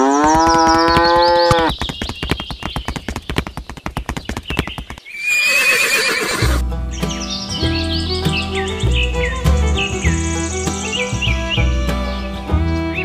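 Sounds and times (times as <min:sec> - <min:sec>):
clip-clopping hoofbeats: 0:00.0 - 0:13.0
horse whinny: 0:05.1 - 0:06.6.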